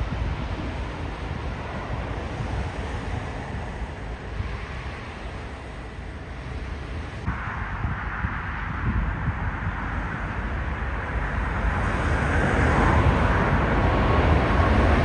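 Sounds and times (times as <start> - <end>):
wind buffeting microphone: 0.0 - 15.0
jet engine rushing: 11.7 - 15.0.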